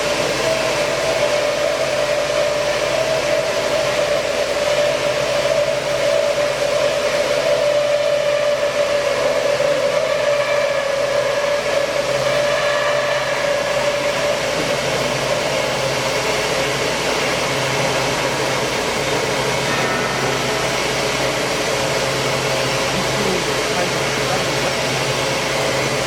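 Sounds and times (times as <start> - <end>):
band saw cutting steel: 5.2 - 26.0.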